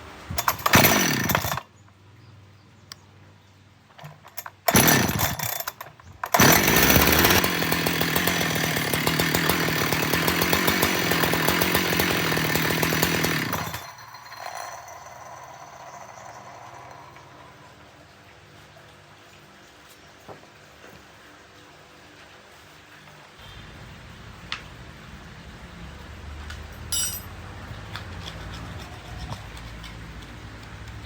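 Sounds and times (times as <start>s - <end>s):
chainsaw engine starting and revving: 0.4s - 1.7s, 4.3s - 17.8s.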